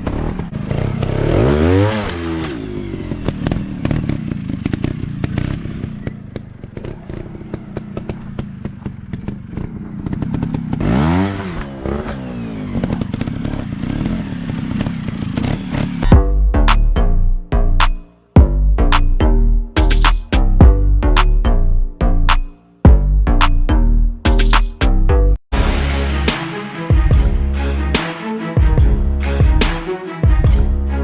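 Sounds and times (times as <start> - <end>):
dirt bike engine revving: 0.0 - 16.1
music: 16.1 - 31.0.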